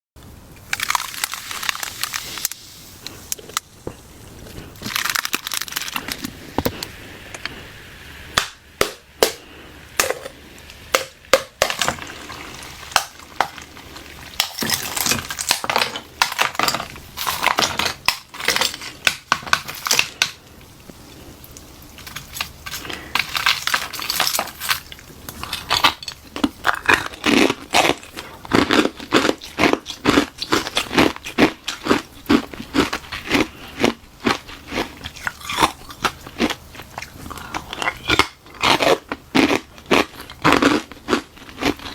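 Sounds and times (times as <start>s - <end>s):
ice shell cracking: 0.6s - 2.6s, 4.8s - 6.3s, 10.0s - 20.4s, 22.0s - 28.0s.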